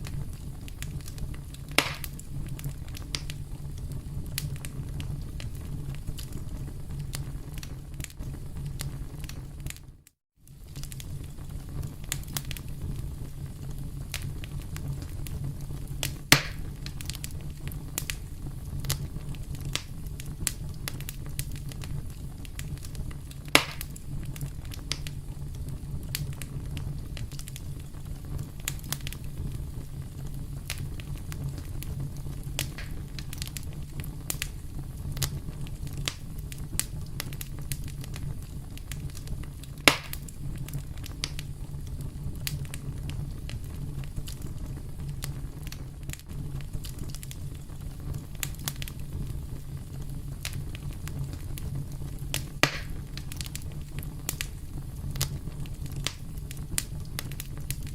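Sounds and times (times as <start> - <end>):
campfire crackling: 0.0 - 57.9
fire pops: 0.0 - 57.9.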